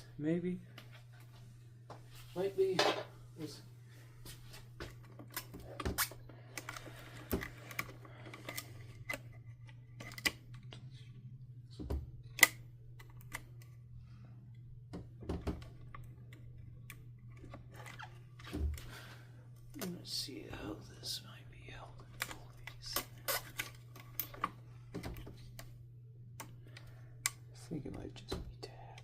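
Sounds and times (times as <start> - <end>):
steady low hum: 0.0 - 29.0
plastic parts clicking: 5.1 - 10.8.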